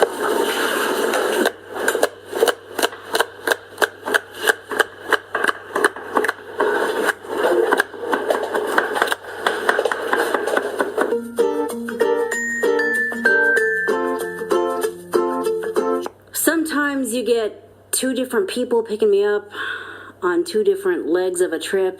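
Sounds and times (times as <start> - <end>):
knife chopping celery on cutting board: 1.8 - 11.2.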